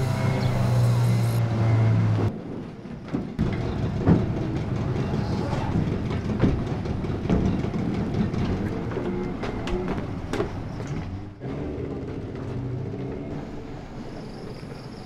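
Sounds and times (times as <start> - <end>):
boat engine droning: 0.0 - 2.4, 3.4 - 15.0
rattling mechanical run with knocks: 2.3 - 13.8.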